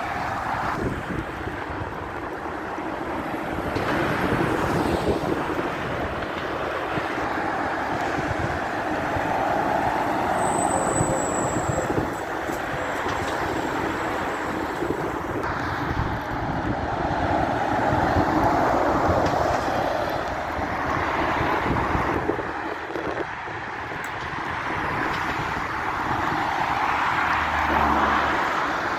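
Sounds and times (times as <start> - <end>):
heavy vehicles rumbling past: 0.0 - 28.9
high squeal: 10.2 - 12.2.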